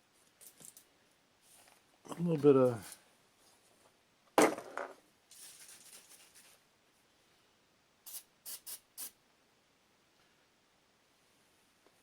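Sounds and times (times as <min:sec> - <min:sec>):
aerosol can spraying: 0:08.0 - 0:09.2.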